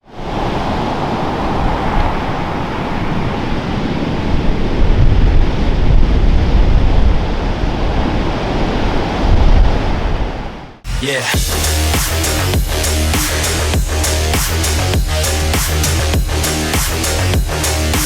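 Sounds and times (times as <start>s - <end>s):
ocean surf: 0.0s - 6.7s
wind rumbling on microphone: 0.0s - 10.8s.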